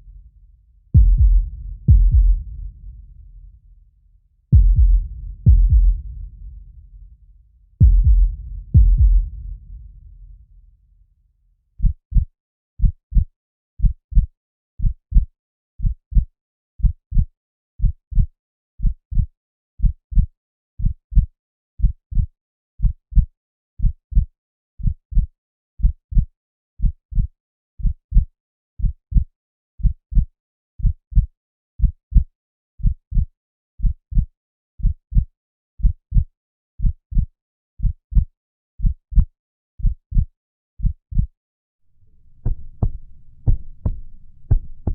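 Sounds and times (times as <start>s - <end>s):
heartbeat through stethoscope: 1.0s - 3.6s, 4.5s - 7.1s, 7.8s - 10.2s, 42.2s - 44.9s.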